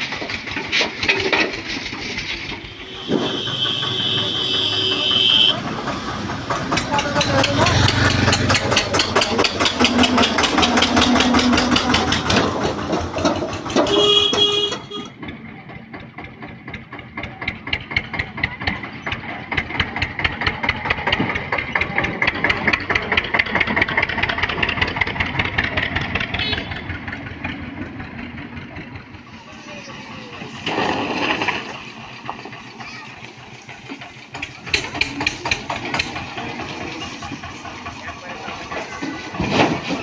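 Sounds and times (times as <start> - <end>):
tractor diesel engine running: 0.0 - 40.0
brief horn honk: 2.6 - 5.7, 13.8 - 15.2, 26.3 - 27.0.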